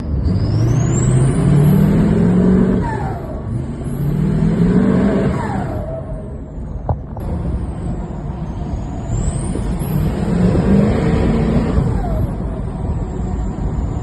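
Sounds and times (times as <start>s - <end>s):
diesel engine revving: 0.0s - 14.0s.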